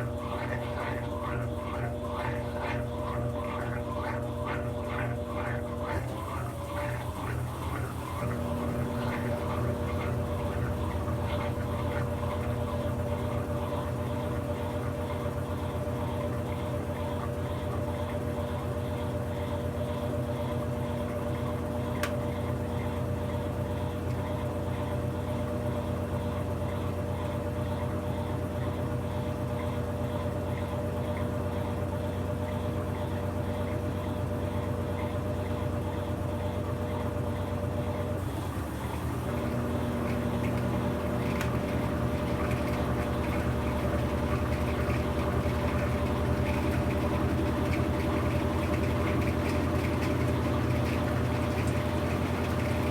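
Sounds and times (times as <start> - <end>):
washing machine running: 0.0 - 52.9.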